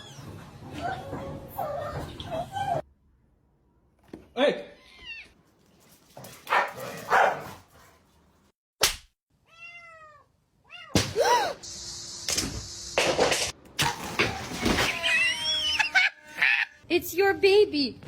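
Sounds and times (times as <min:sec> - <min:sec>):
cat meowing: 0:09.4 - 0:11.0.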